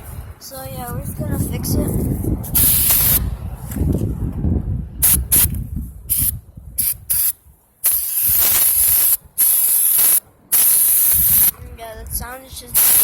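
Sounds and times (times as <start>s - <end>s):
aerosol spray hissing: 2.6s - 3.2s, 6.1s - 11.5s, 12.8s - 13.0s.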